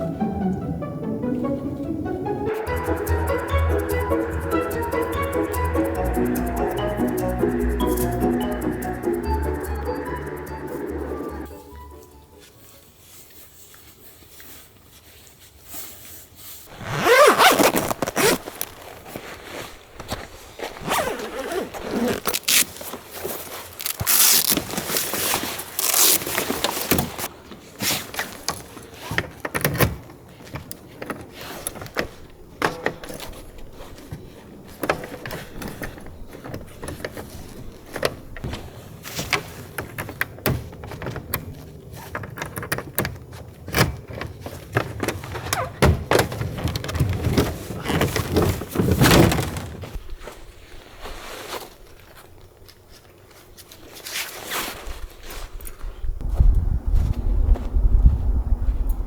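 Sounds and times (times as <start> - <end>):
scraping and rustling: 12.5 - 56.4
zipper pulled: 16.7 - 19.2, 20.6 - 27.3.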